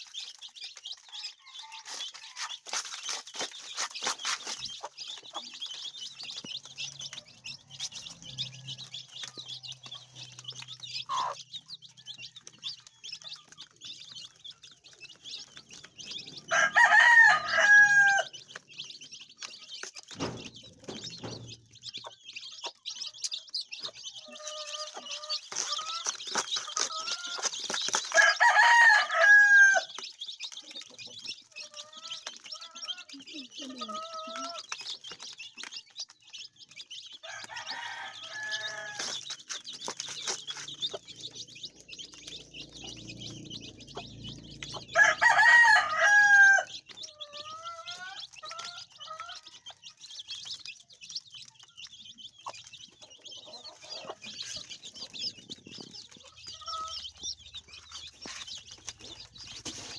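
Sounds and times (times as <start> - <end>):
high-pitched chatter: 0.0 - 28.9, 29.8 - 36.0
rooster crowing: 16.5 - 18.3, 28.1 - 29.9, 37.2 - 39.2, 44.9 - 46.7.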